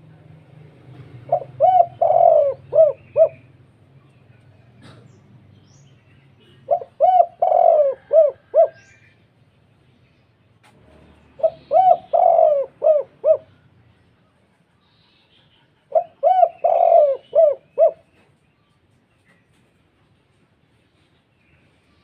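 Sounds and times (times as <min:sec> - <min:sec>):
dove cooing: 0:01.2 - 0:03.6, 0:06.4 - 0:09.1, 0:11.2 - 0:13.7, 0:15.9 - 0:18.3.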